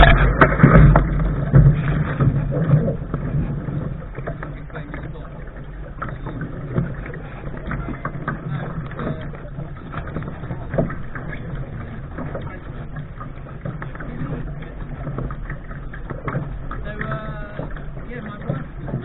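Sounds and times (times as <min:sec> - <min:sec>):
hull knocks: 0:00.0 - 0:19.0
water splashing at bow: 0:00.0 - 0:19.0
wind rumble on microphone: 0:00.0 - 0:19.0.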